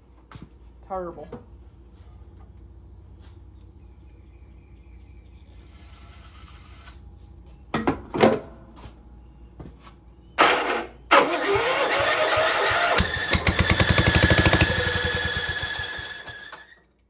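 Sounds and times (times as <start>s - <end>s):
engine electric starter cranking: 10.4s - 17.0s.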